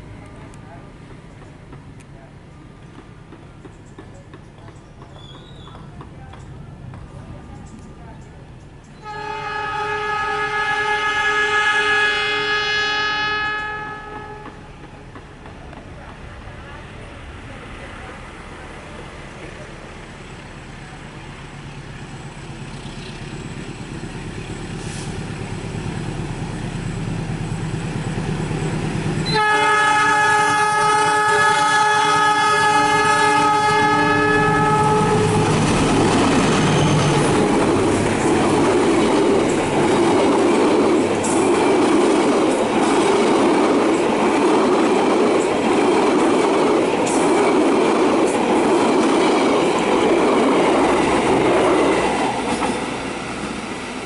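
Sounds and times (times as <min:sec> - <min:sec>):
train rumbling past: 0:00.0 - 0:54.0
train horn blast: 0:09.0 - 0:14.7, 0:29.2 - 0:35.7
wheels clacking over rail joints: 0:34.4 - 0:54.0.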